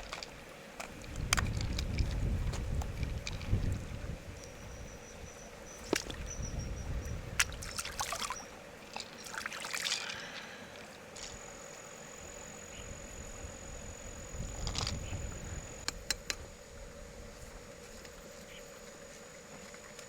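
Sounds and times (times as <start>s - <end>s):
water trickling and splashing: 0.0s - 4.6s, 7.4s - 11.4s.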